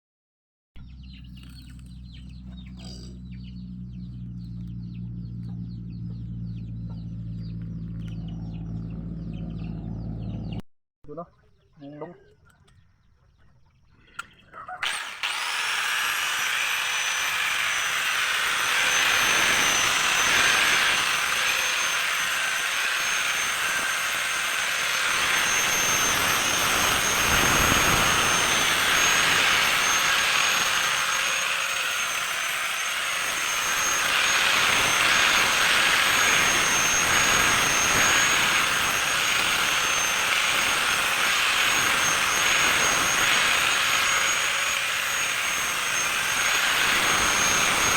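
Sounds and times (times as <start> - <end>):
electric grinder whine: 14.8 - 47.9
grinding hiss: 15.2 - 47.9.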